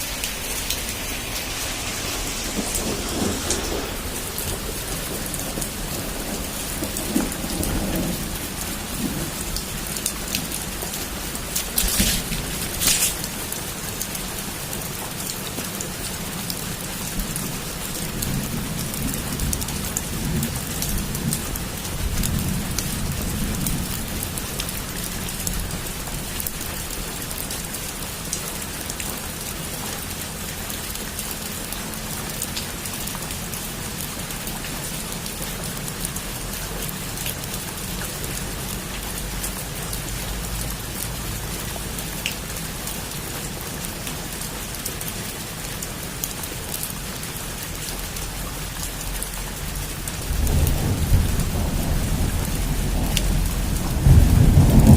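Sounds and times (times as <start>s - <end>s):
heavy rain falling: 0.0s - 54.9s
low rumble of thunder: 0.1s - 16.0s, 16.6s - 27.0s, 50.0s - 54.9s.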